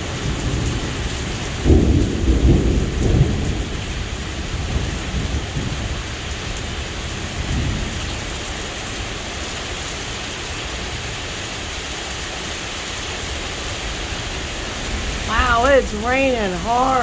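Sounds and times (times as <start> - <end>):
low rumble of thunder: 1.7 - 4.0
heavy rain pouring: 15.2 - 17.0.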